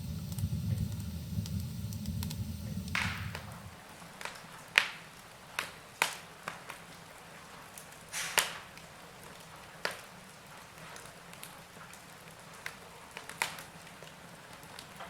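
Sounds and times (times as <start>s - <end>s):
hiss of flame: 0.0s - 4.0s, 7.7s - 8.6s
fire popping and crackling: 0.0s - 4.4s, 7.7s - 15.0s.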